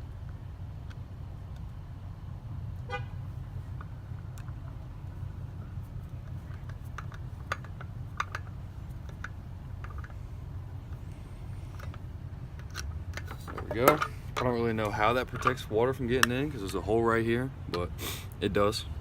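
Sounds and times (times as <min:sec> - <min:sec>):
low background rumble: 0:00.0 - 0:19.0
small parts clicking and tapping: 0:03.7 - 0:05.2, 0:05.9 - 0:10.2, 0:10.8 - 0:16.5.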